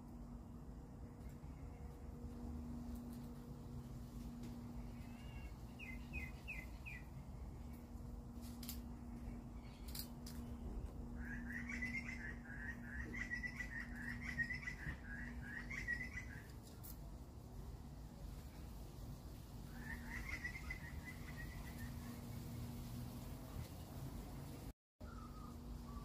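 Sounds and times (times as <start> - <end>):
steady low hum: 0.0 - 26.0
bird rapid warbling chirps: 5.0 - 7.1, 11.2 - 16.5, 19.7 - 22.3.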